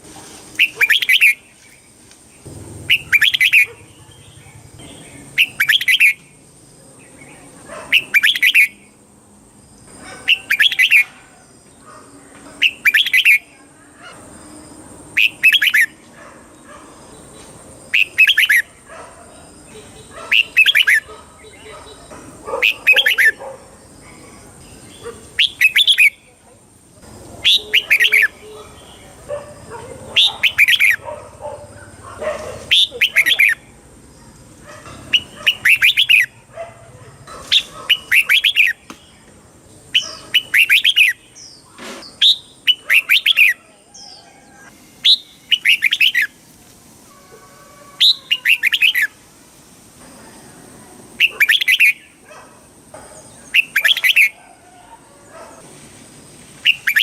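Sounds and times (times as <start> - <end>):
bulbul singing: 0.6 - 9.0, 10.0 - 11.3, 12.4 - 13.6, 15.2 - 16.0, 17.2 - 23.4, 24.1 - 26.4, 27.0 - 32.1, 32.7 - 33.7, 34.9 - 36.5, 37.5 - 46.4, 48.0 - 49.2, 53.2 - 54.4, 56.6 - 57.0.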